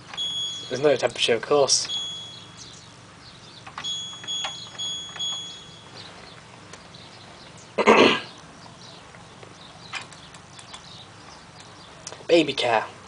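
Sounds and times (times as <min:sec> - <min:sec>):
short high beeps: 0:00.1 - 0:00.9, 0:01.8 - 0:02.8, 0:03.8 - 0:06.1
button clicks: 0:03.6 - 0:05.8
person coughing: 0:07.8 - 0:08.3.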